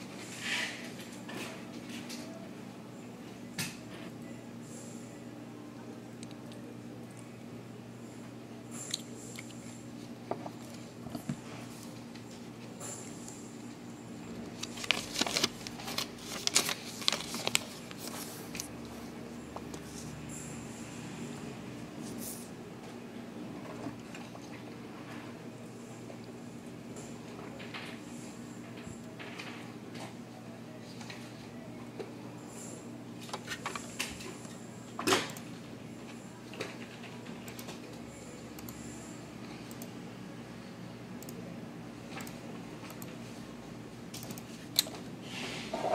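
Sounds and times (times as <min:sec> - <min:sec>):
faint steady hum: 0:00.0 - 0:45.9
paper rustling and crackling: 0:14.5 - 0:18.7.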